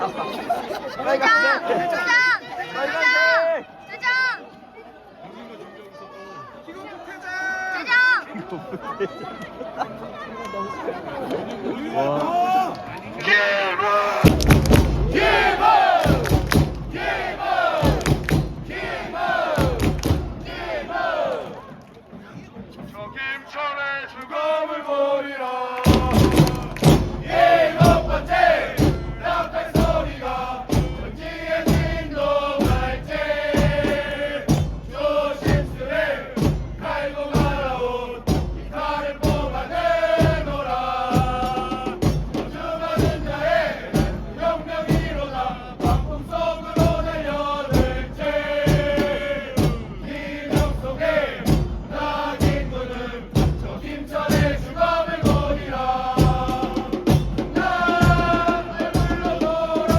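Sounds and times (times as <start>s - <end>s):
crowd chanting in unison: 0.0s - 59.9s
steady drumbeat: 14.1s - 23.0s, 25.8s - 59.9s.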